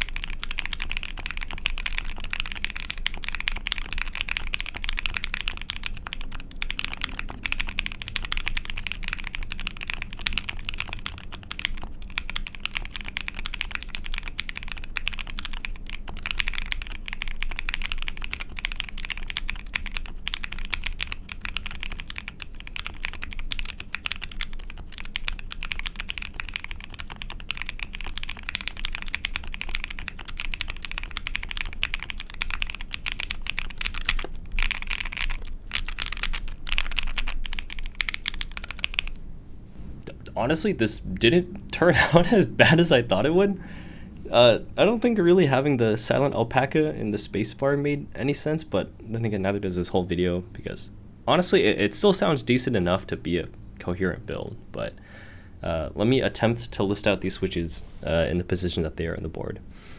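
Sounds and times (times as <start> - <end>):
mechanical keyboard typing: 0.0 - 39.2.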